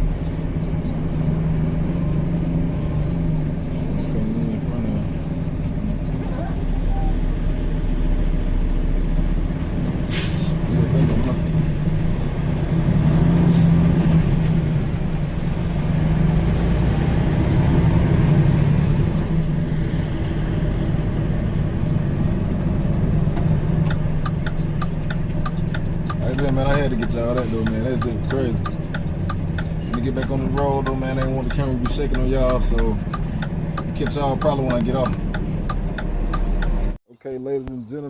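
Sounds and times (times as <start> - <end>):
truck engine running: 0.0 - 37.0
air brake hisses: 10.1 - 10.6, 13.5 - 13.8
quick ticks: 23.8 - 36.9.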